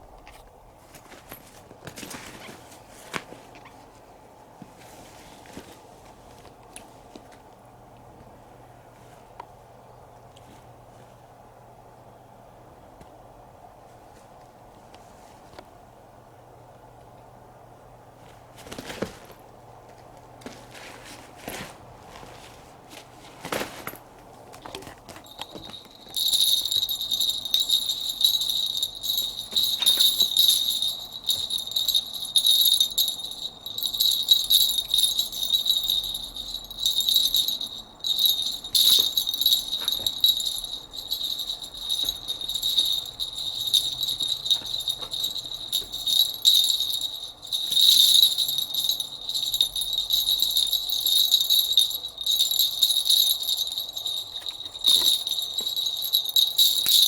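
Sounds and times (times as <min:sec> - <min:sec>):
small jingle bell shaken: 0:25.2 - 0:57.0.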